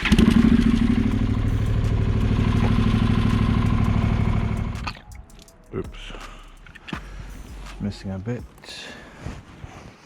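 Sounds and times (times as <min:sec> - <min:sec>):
motorcycle engine idling: 0:00.0 - 0:04.9.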